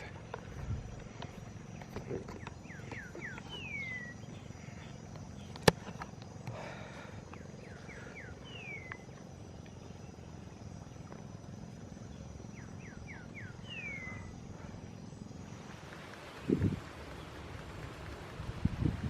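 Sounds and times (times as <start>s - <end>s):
bird whistling song: 1.8s - 5.6s, 7.3s - 9.1s, 12.5s - 14.4s.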